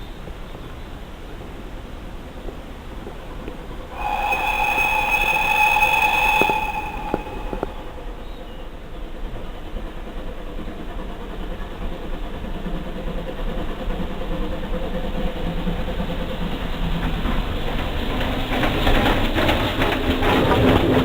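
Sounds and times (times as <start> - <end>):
train approaching rumble: 3.9 - 8.3.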